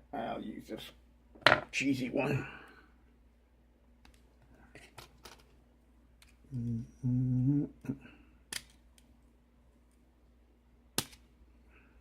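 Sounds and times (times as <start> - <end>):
man humming low notes: 6.5 - 8.0.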